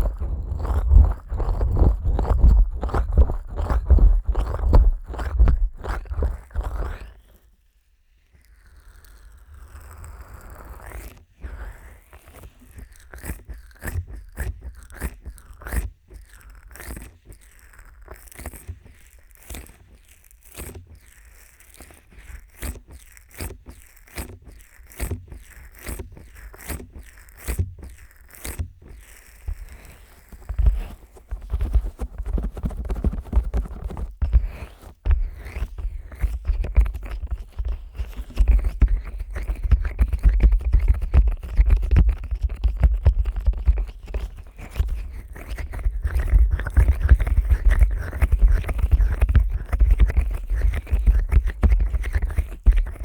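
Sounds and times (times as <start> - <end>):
fingers scraping microphone ears: 0.0 - 7.4, 8.4 - 53.0
soft rubbing: 16.2 - 53.0.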